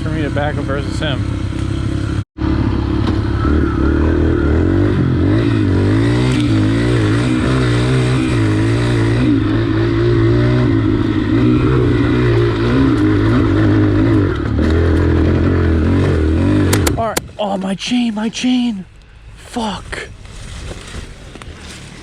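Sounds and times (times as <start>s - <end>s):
dirt bike engine running: 0.0s - 17.2s.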